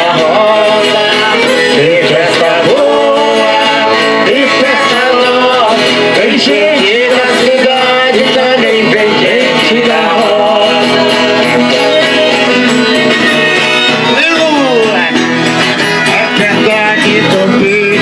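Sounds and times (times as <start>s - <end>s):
group singing: 0.0s - 14.1s
button accordion playing: 0.0s - 18.0s.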